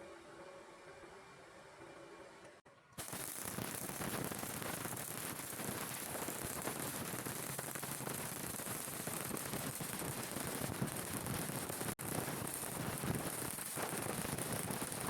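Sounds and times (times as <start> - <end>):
welding arc crackling: 3.0 - 15.0.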